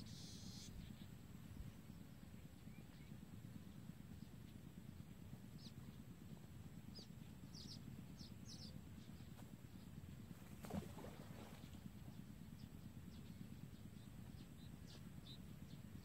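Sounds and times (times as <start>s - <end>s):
faint high bird chirps: 0.0s - 3.2s
low steady rumble: 0.0s - 16.0s.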